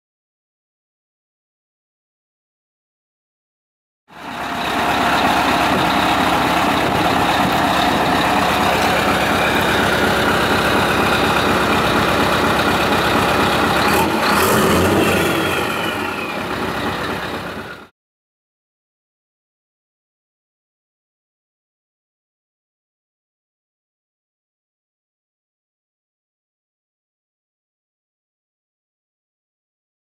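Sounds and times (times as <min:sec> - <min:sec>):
diesel truck engine running: 0:04.1 - 0:17.9.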